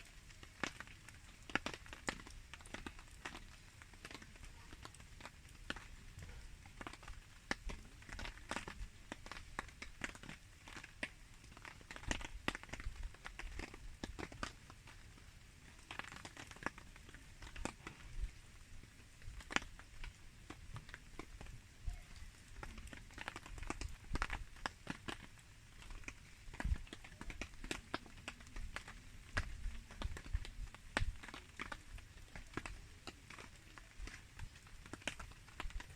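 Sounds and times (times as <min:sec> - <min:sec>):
campfire crackling: 0:00.0 - 0:35.9
fire snaps and pops: 0:00.0 - 0:35.9.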